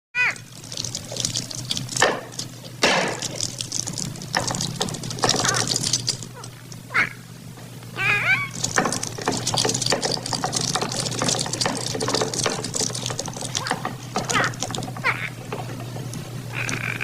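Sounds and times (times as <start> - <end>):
film soundtrack hum and hiss: 0.2 - 17.0
crackles: 0.3 - 7.0.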